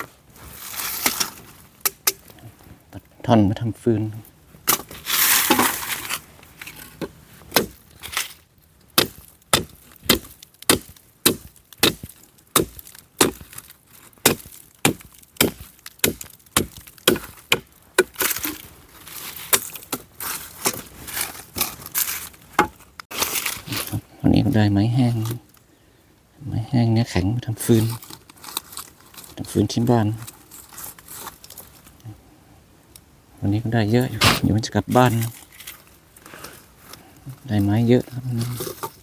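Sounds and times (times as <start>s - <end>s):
blade chopping wood: 7.0s - 8.3s, 9.0s - 13.6s, 14.2s - 18.6s, 34.2s - 34.6s.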